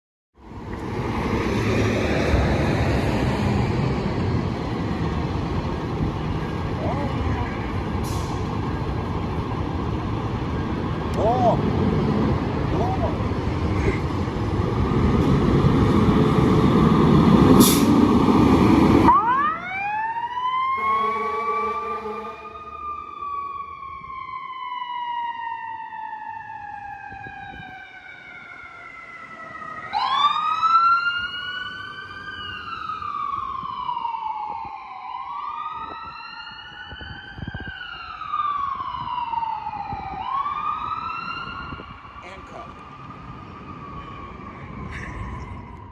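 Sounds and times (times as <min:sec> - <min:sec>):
heavy truck rumble: 0:00.4 - 0:23.3
siren wailing: 0:02.2 - 0:45.9.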